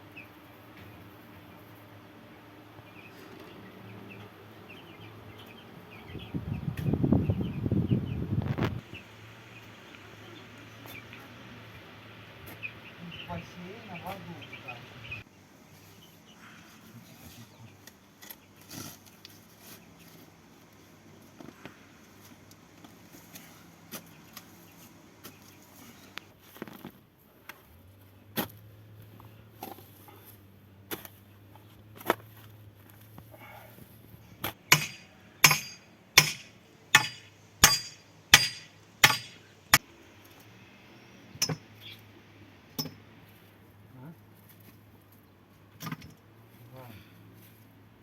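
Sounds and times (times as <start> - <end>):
hammer blows: 34.7 - 39.4.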